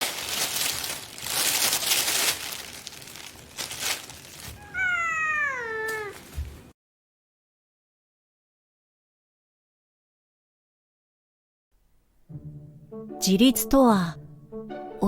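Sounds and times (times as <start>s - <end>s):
rustling: 0.0s - 6.7s
cat meowing: 4.5s - 6.3s.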